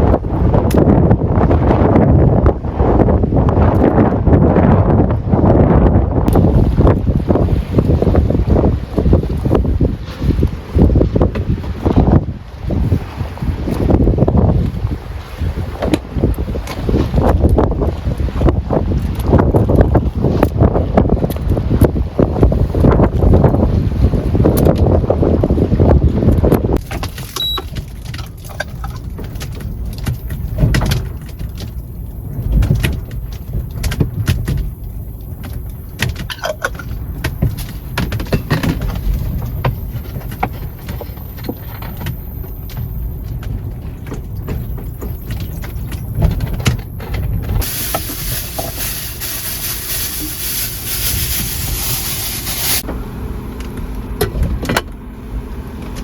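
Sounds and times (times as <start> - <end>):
wind buffeting microphone: 0.0 - 54.9
hiss: 47.6 - 52.8.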